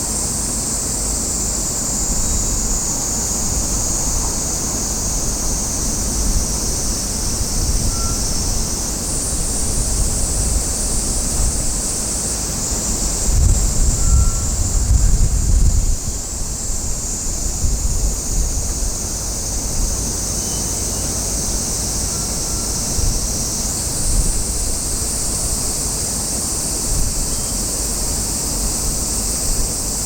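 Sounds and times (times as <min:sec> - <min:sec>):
wind buffeting microphone: 0:02.1 - 0:12.0, 0:12.8 - 0:20.2, 0:22.4 - 0:25.8.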